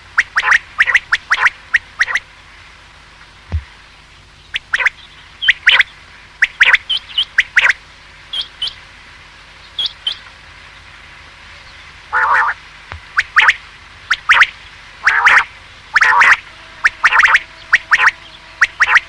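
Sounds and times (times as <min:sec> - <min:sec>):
quail calling: 0:00.0 - 0:02.2, 0:04.5 - 0:08.8, 0:12.1 - 0:19.0
raspy quail call: 0:00.0 - 0:02.3, 0:04.5 - 0:08.8, 0:12.1 - 0:19.0.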